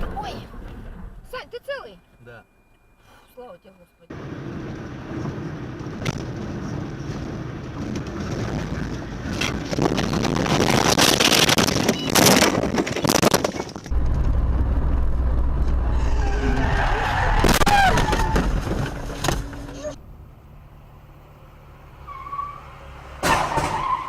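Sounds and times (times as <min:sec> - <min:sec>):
car road and engine noise: 0:00.0 - 0:24.0
clattering and crunching: 0:07.2 - 0:14.3.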